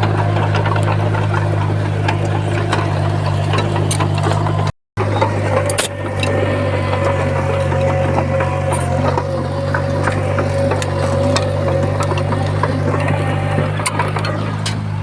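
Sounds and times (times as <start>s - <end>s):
clicks and clanks: 0.0s - 15.0s
diesel engine running: 0.0s - 15.0s.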